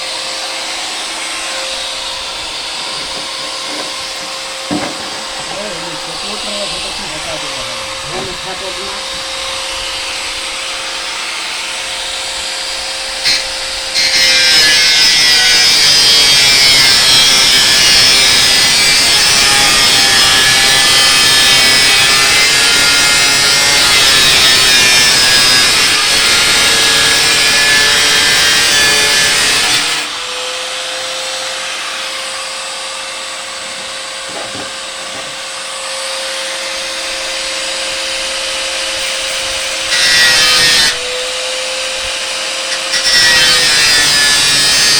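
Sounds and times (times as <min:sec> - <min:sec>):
harsh grinding: 0:00.0 - 0:11.3.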